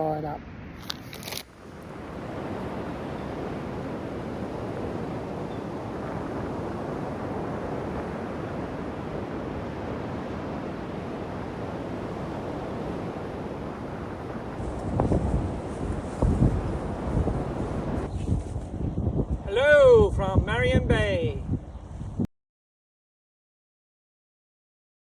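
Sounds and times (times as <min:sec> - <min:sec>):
coastal wind: 0:00.0 - 0:22.3
surf: 0:01.8 - 0:18.8.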